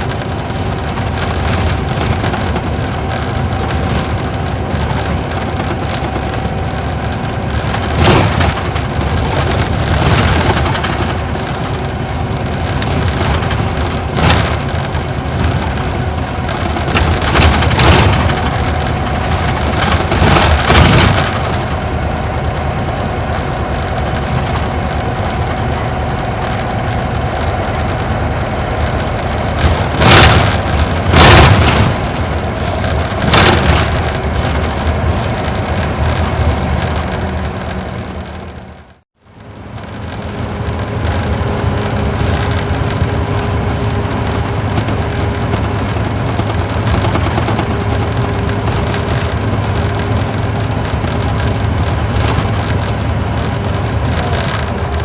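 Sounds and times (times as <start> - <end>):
loud knocks and rattles: 0.0 - 39.0, 39.7 - 55.0
diesel engine running: 0.0 - 55.0
road noise: 0.0 - 55.0.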